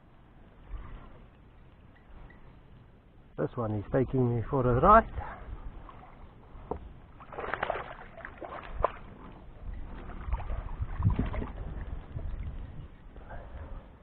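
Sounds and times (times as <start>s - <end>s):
water sloshing and splashing: 5.7s - 13.1s.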